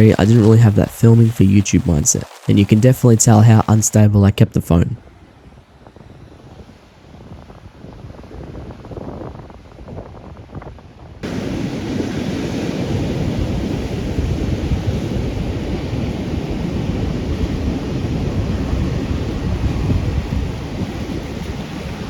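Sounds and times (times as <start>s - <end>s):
heavy ocean surf: 0.0s - 22.0s
wind buffeting microphone: 5.0s - 22.0s.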